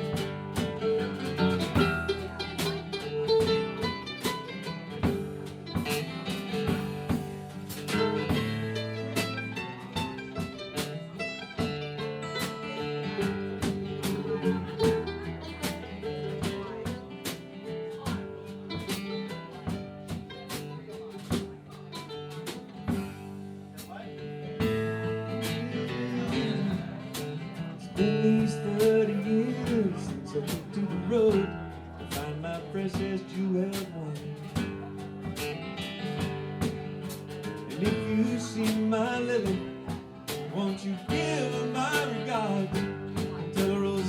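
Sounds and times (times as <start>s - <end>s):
country band guitars and beat: 0.0s - 44.0s.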